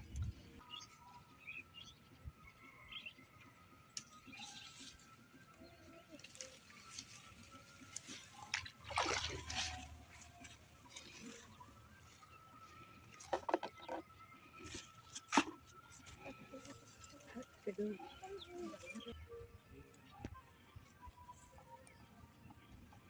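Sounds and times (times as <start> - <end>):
water splashing and dribbling: 6.2 - 12.4.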